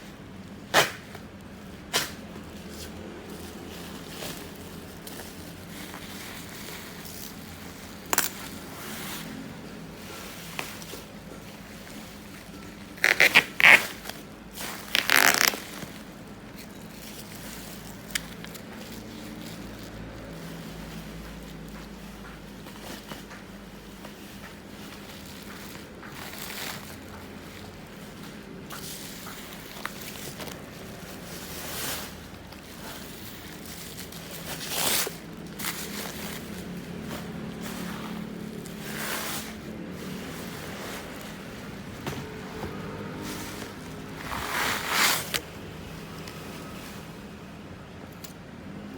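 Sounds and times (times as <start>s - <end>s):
plastic and cardboard rustling: 0.0s - 48.9s
packaging tearing: 12.9s - 21.1s.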